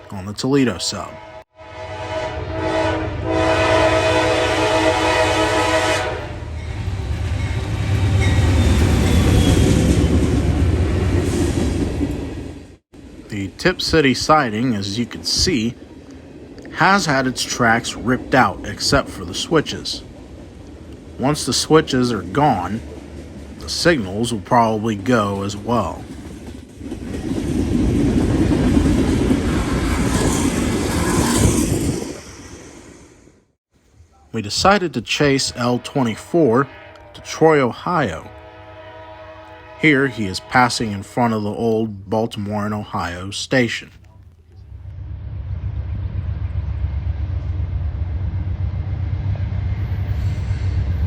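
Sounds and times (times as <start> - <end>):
train horn: 0.7 - 6.6, 35.2 - 41.4
locomotive engine and wheels rumbling: 2.7 - 33.3, 33.9 - 51.0.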